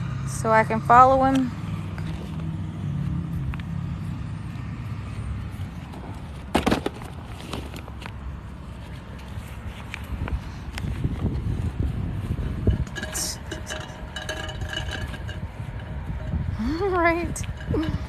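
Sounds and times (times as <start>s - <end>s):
phone handling rumble: 12.3s - 18.0s.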